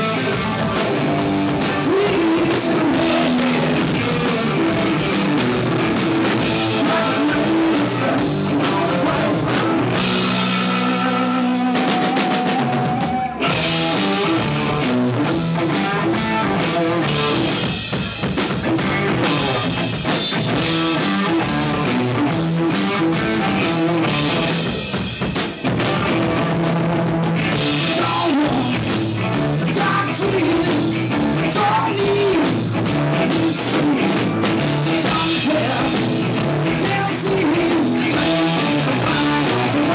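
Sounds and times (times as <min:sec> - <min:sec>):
person singing: 0:00.0 - 0:14.9, 0:27.7 - 0:39.9
rock band playing live: 0:00.0 - 0:39.9.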